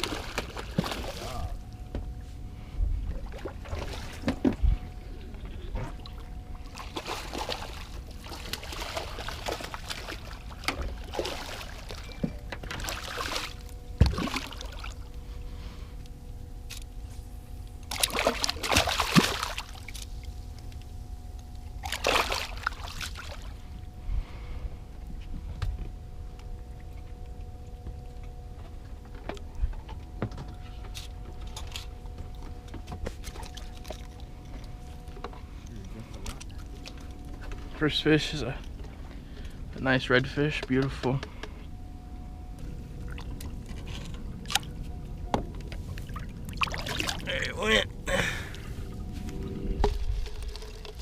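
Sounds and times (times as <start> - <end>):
water splashing and trickling: 0.0 - 24.6, 25.9 - 51.0
faint steady hum: 0.0 - 51.0
knocks and thumps on boat: 3.1 - 4.8, 8.6 - 14.6.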